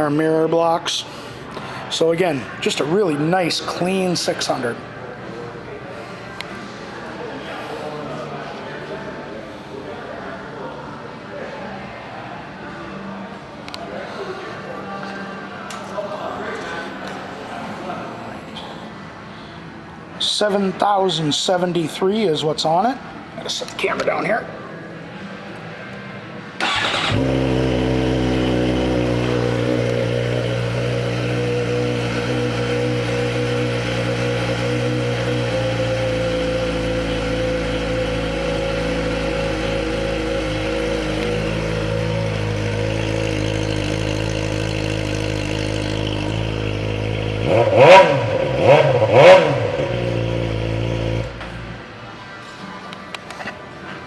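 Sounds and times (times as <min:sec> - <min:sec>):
motorcycle engine revving: 0:26.6 - 0:51.9
motorcycle engine starting and idling: 0:26.6 - 0:51.9.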